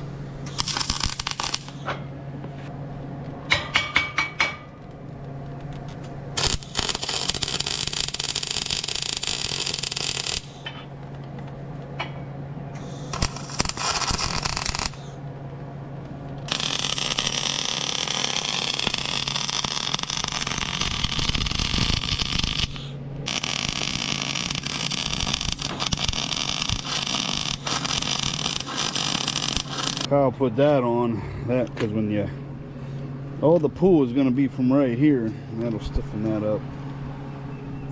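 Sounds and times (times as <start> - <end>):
steel being cut and ground: 6.4 - 10.6, 12.8 - 15.1, 16.5 - 30.1.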